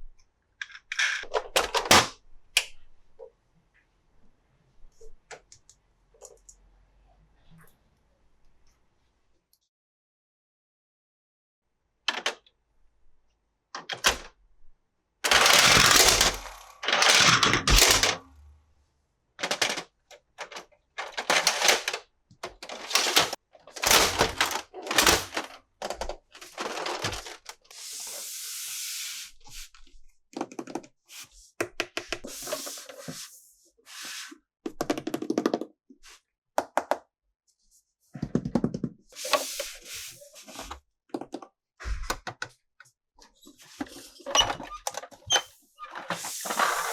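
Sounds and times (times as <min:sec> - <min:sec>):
plastic toy pieces clicking: 0:15.3 - 0:18.2, 0:19.4 - 0:27.2
packaging rustling: 0:15.3 - 0:18.3, 0:19.4 - 0:27.5
plastic scraping: 0:15.3 - 0:18.4, 0:19.4 - 0:27.6, 0:43.8 - 0:46.9.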